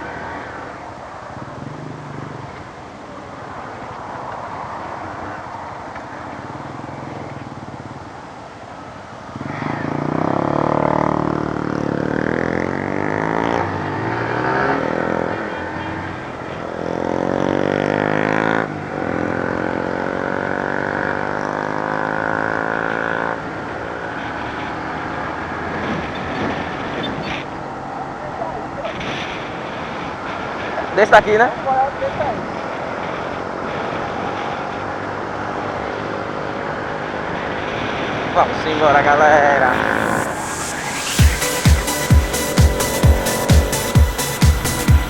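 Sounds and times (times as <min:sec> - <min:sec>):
motorcycle engine accelerating: 0:09.4 - 0:26.8, 0:39.3 - 0:45.0.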